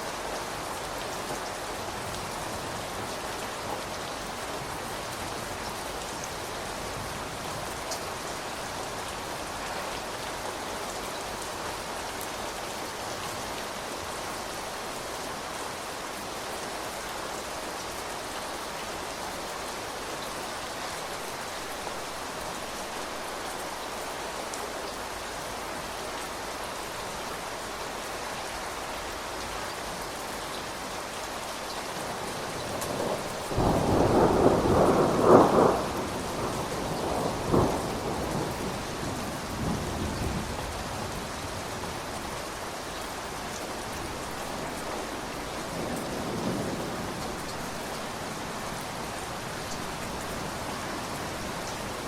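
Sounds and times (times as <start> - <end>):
steady rain falling: 0.0 - 52.0
thunder rumbling: 32.4 - 41.7.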